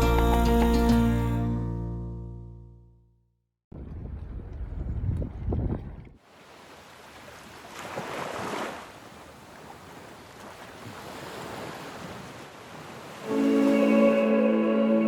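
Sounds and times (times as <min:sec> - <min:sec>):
wind buffeting microphone: 0:03.7 - 0:06.2
waves washing: 0:06.2 - 0:15.0.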